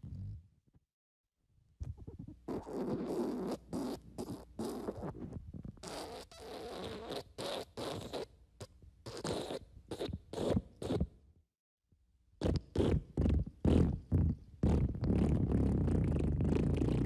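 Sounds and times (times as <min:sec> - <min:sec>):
fart sound effect: 0:12.4 - 0:17.0.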